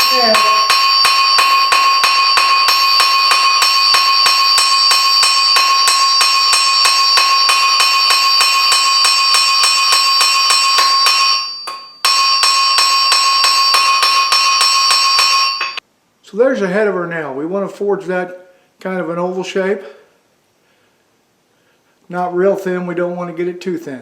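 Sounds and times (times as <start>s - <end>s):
hammer blows on an anvil: 0.0s - 15.8s.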